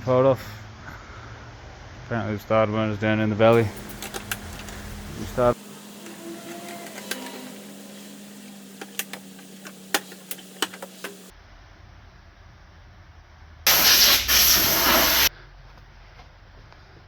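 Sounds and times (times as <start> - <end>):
hand tools clicking on metal: 3.5 - 11.3
loud hiss: 3.5 - 11.3, 13.7 - 15.3
steady low hum: 3.5 - 11.3.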